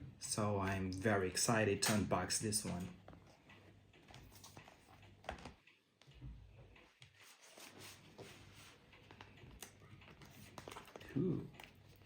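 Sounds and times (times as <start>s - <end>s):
faint clicks and knocks: 2.4s - 12.0s.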